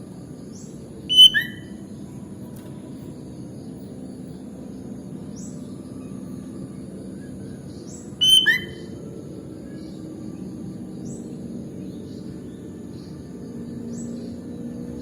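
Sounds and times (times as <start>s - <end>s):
low background hum: 0.0s - 15.0s
bird whistling and chirping: 1.1s - 1.8s, 7.9s - 9.0s.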